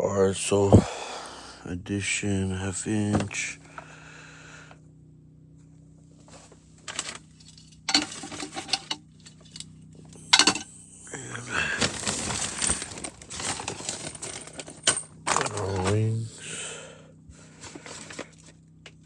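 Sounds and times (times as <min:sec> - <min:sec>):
small plumbing parts clinking: 0:06.9 - 0:10.8, 0:11.8 - 0:16.0.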